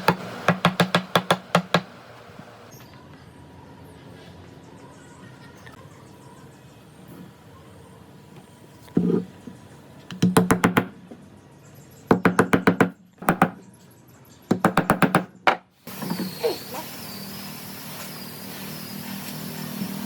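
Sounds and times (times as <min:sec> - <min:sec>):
faint high whine: 0:15.9 - 0:20.0.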